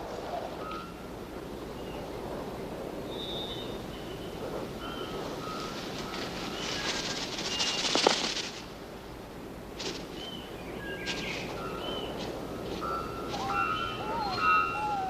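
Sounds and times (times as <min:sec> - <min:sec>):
forest ambience hum: 0:00.0 - 0:15.0
forest birds whistling: 0:03.0 - 0:08.0, 0:10.1 - 0:15.0
scratching and rustling: 0:05.6 - 0:08.7.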